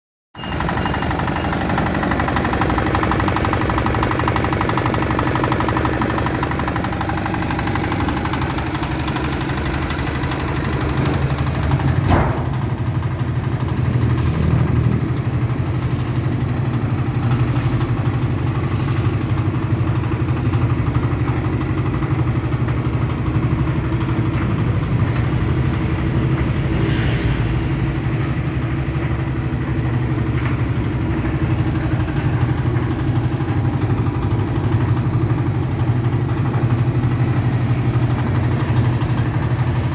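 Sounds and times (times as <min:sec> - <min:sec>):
diesel engine running: 0:00.4 - 0:39.9
sharp knock: 0:12.0 - 0:12.7.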